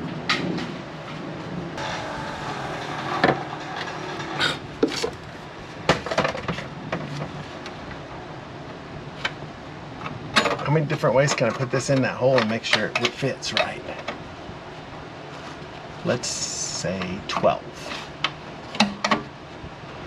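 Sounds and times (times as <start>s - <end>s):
steady low hum: 0.0s - 20.0s
metal scraping: 1.8s - 5.5s.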